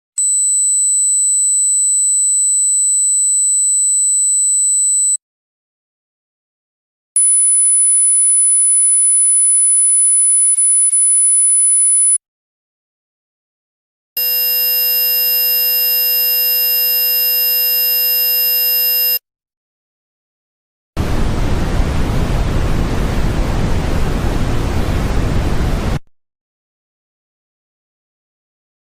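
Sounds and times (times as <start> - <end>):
high-pitched ringing tone: 0.2 - 5.2, 7.2 - 12.2, 14.2 - 19.2
multi-tone buzz: 14.2 - 16.4.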